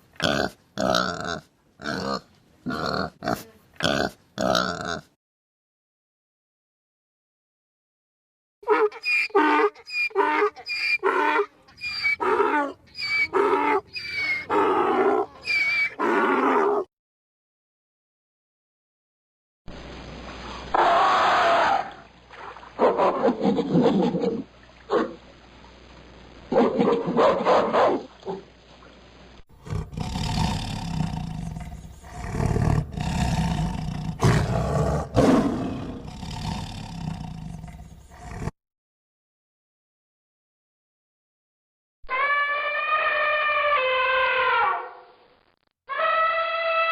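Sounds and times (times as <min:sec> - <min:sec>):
lioness calling: 0:08.6 - 0:16.9, 0:42.1 - 0:45.0, 0:45.9 - 0:46.9
lioness roaring: 0:29.6 - 0:38.5.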